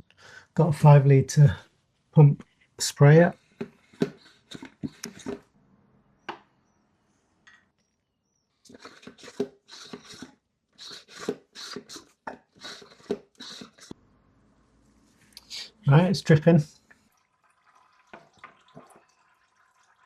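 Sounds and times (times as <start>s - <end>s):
hand pump sprayer pumping: 3.4s - 5.4s, 8.6s - 14.0s.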